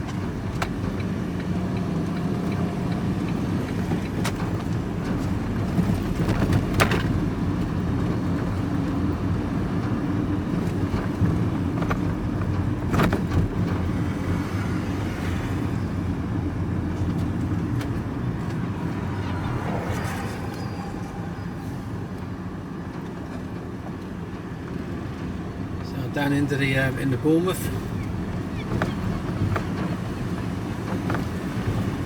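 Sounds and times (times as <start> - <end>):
road noise: 0.0 - 32.0
vehicle engine hum: 0.0 - 32.0.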